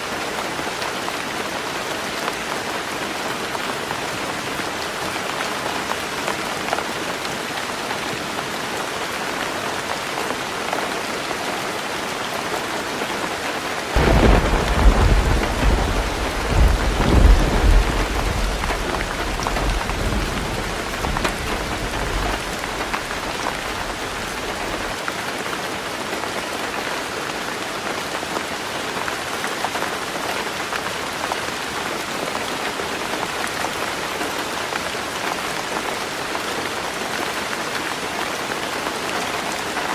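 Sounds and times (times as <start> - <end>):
heavy rain drumming on a roof: 0.0 - 39.9
thunder clap and rumble: 14.0 - 25.0.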